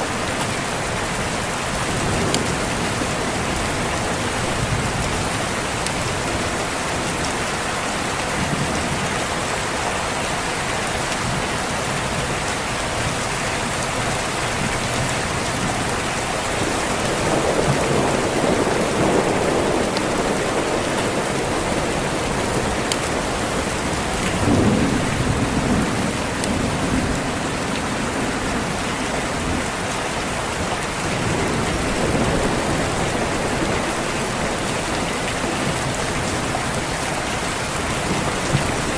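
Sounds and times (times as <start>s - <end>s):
heavy rain: 0.0s - 38.9s
thunder rumbling: 14.5s - 29.9s, 30.6s - 38.9s.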